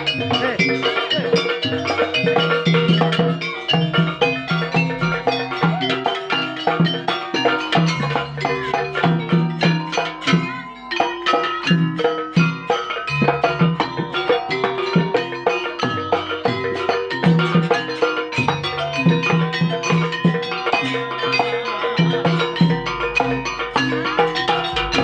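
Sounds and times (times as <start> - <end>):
pitched percussion strikes: 0.0 - 25.0
low drum pattern: 22.4 - 25.0.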